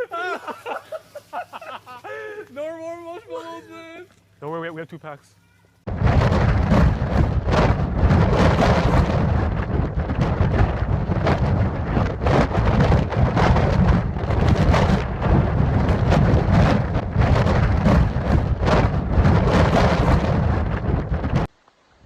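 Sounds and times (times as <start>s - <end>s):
crackling hits: 5.8s - 21.8s
wind buffeting microphone: 5.9s - 21.5s.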